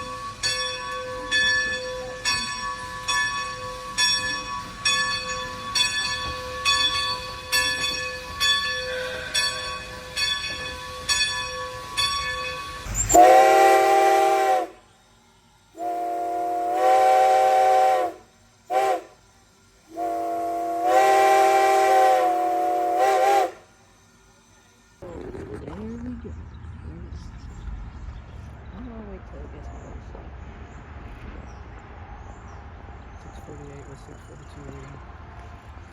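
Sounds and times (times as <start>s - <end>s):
steam locomotive bell ringing: 0.0s - 14.7s
chime steam whistle blowing: 0.0s - 14.9s, 15.7s - 24.8s.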